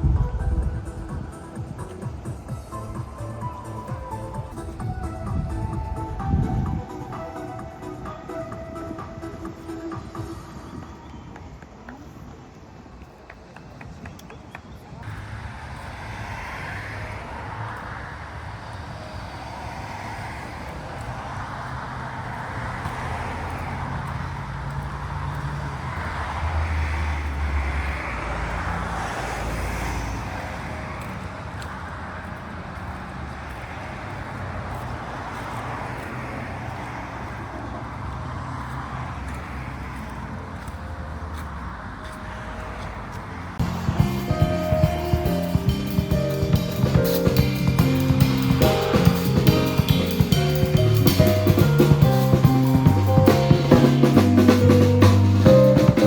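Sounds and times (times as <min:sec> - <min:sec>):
tyre and road noise: 0:00.0 - 0:56.0
vehicle engine hum: 0:15.0 - 0:56.0.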